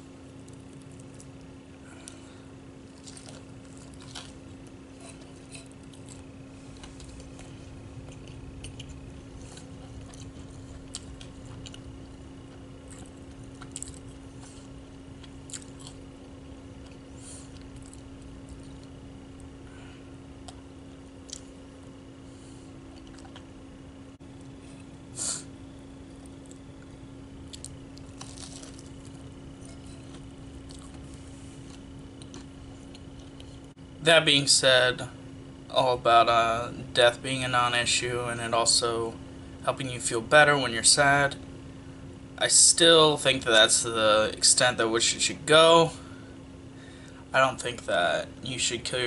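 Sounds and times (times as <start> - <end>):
steady low hum: 0.0 - 49.0
person chewing food: 2.9 - 16.1, 16.8 - 19.5, 22.8 - 23.6, 26.0 - 33.7.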